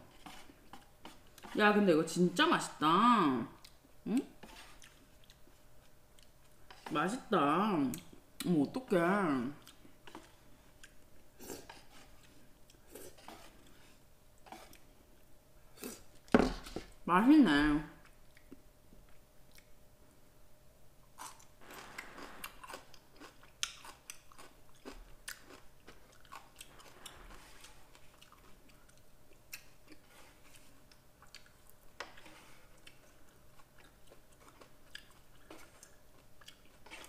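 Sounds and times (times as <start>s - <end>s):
wet chewing of noodles: 3.6s - 6.9s, 9.6s - 16.3s, 18.0s - 19.8s, 21.1s - 37.0s.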